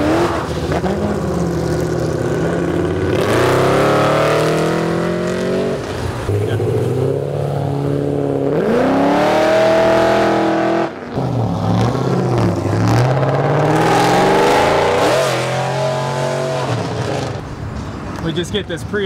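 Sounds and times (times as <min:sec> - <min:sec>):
car engine revving hard: 0:00.0 - 0:17.4.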